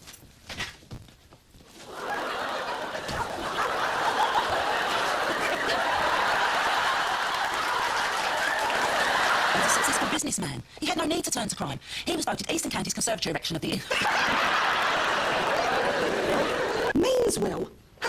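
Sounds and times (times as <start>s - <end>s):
group laughter: 1.8s - 10.3s, 13.8s - 17.0s.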